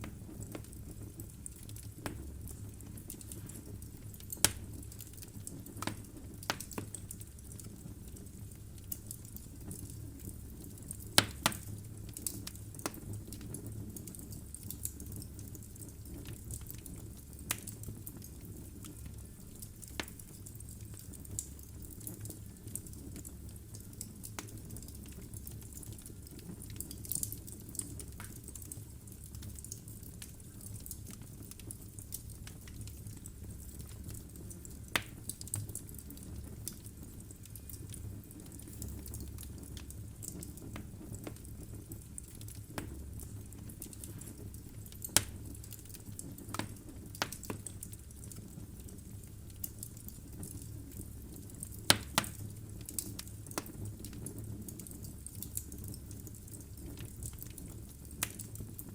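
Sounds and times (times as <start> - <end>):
low rumble of flames: 0.0 - 58.9
wood fire crackling and popping: 0.0 - 58.9.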